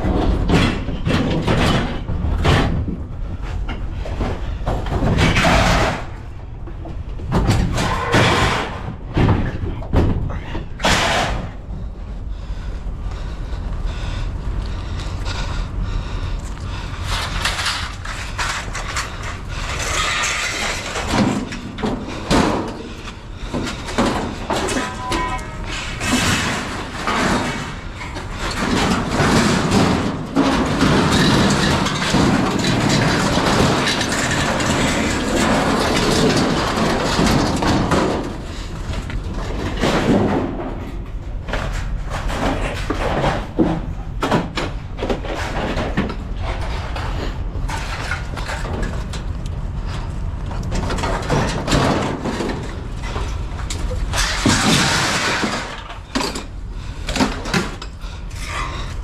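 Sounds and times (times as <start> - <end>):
knocks bangs and thuds: 0.0 - 11.7, 20.7 - 47.1, 50.7 - 53.3, 54.0 - 56.4
dense rattling and scraping: 0.0 - 59.0.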